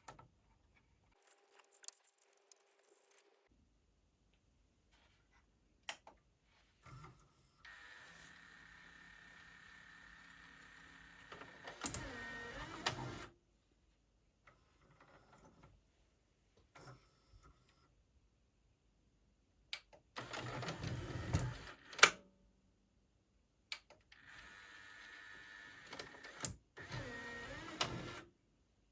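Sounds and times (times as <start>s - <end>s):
small motor and gears whining: 7.7s - 13.3s, 24.2s - 28.2s.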